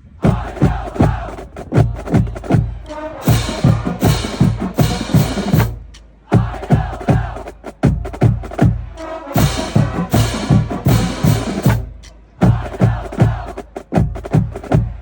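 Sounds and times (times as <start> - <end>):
snare drums: 0.2 - 15.0
cymbal wash: 2.9 - 6.0.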